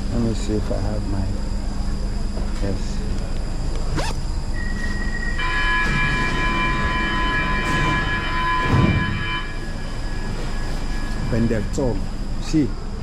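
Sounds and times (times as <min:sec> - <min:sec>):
low station rumble: 0:00.0 - 0:13.0
train horn chord: 0:05.4 - 0:10.7.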